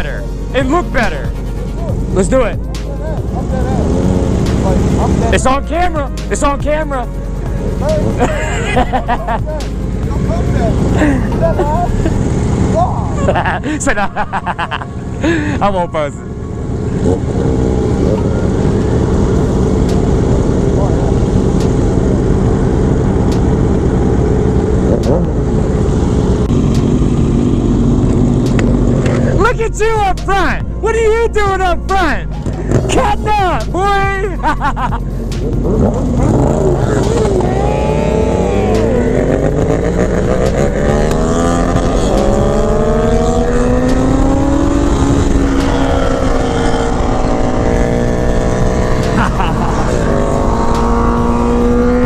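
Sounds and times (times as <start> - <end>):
motorcycle engine running: 0.0 - 30.7, 32.0 - 52.0
heavy wind noise: 32.2 - 52.0.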